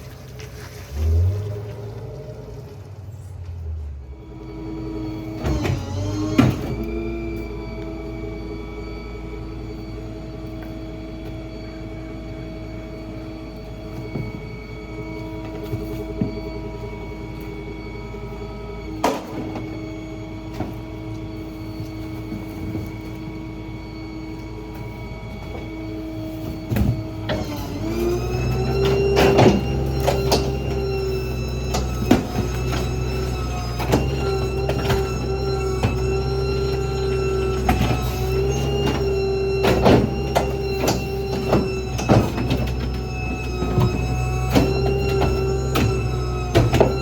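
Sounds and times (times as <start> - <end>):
garbage truck hydraulic whine: 0.0 - 47.0
trash being crushed: 26.4 - 47.0.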